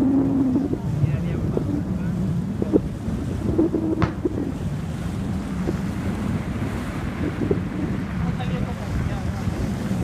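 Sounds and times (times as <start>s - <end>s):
steady low rumble: 0.0s - 10.0s
wind buffeting microphone: 0.0s - 10.0s
sharp crack: 4.0s - 4.5s.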